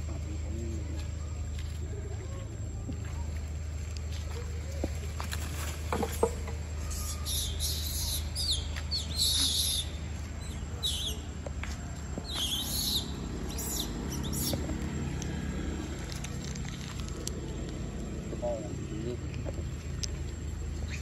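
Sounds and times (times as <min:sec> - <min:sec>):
low steady hum: 0:00.0 - 0:21.0
birds chirping and whistling: 0:06.8 - 0:11.3, 0:12.2 - 0:14.8, 0:20.8 - 0:21.0.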